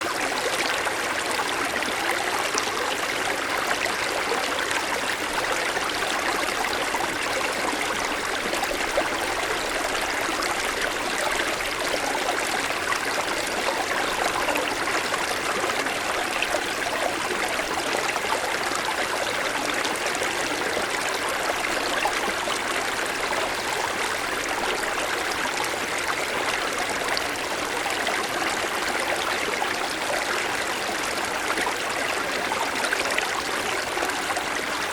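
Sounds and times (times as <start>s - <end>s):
mountain stream flowing over stones: 0.0s - 34.9s.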